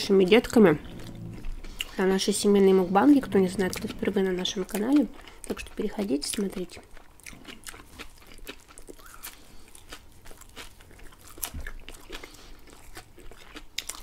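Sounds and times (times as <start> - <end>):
crunching bites and chewing: 4.7 - 14.0.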